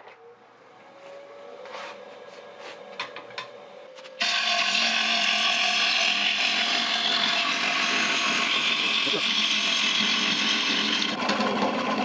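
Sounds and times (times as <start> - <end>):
gouge scraping spinning wood: 4.2 - 12.0.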